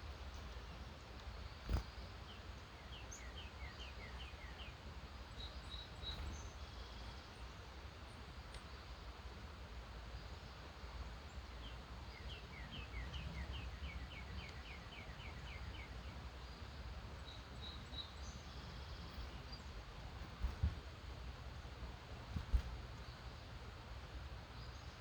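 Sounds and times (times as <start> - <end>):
bird singing: 1.3 - 7.5, 11.3 - 20.3.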